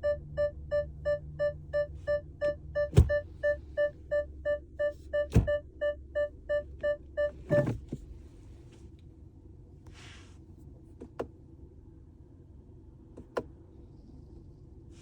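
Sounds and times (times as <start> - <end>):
car warning chime: 0.0 - 7.8.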